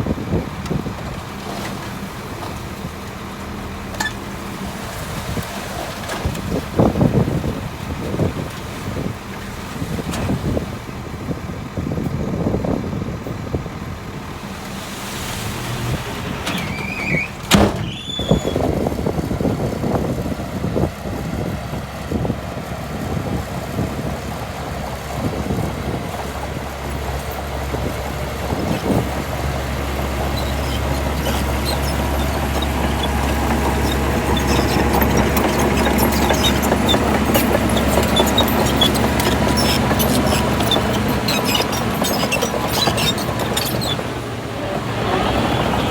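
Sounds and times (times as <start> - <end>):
diesel machinery running: 0.0 - 45.9
brief high squeal: 16.5 - 18.7.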